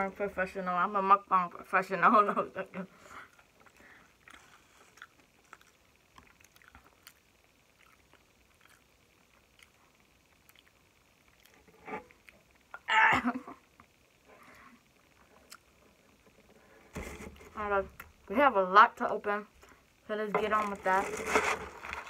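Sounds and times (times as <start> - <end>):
person chewing food: 3.4 - 12.5
soft food crunches: 3.6 - 12.4.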